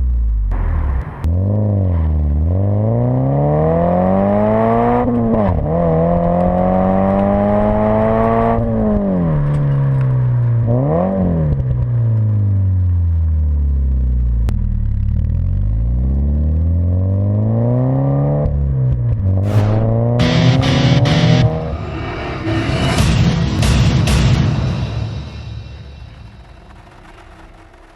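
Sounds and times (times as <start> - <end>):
car exhaust revving: 13.7 - 24.2.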